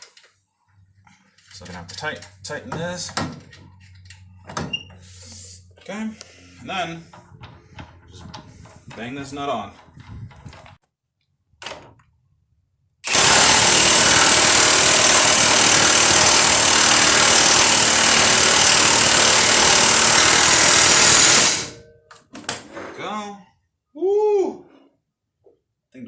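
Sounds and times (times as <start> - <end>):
impact wrench running: 13.0 - 21.8.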